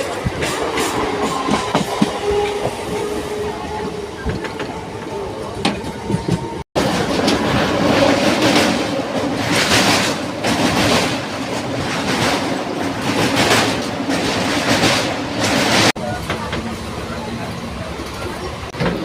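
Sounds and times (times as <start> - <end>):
clickety-clack from rail joints: 0.0 - 19.0
train wheels rumbling on rail: 0.0 - 19.0.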